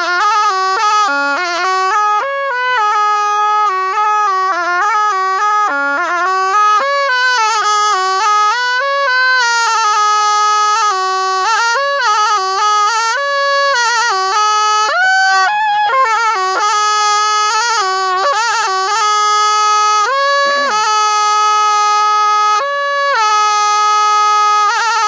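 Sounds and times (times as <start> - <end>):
reed oboe solo melody: 0.0 - 25.0.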